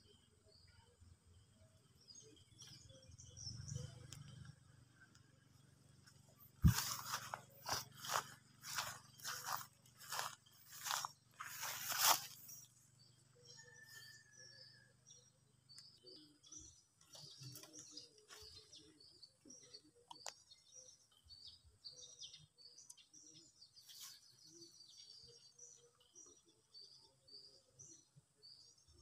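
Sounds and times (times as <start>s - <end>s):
birds chirping: 0.0s - 29.0s
rustles: 6.4s - 12.7s.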